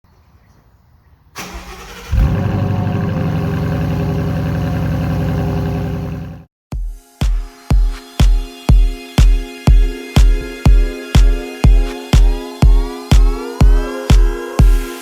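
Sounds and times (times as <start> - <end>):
starter motor cranking: 1.4 - 2.6
car engine starting and idling: 1.4 - 6.5.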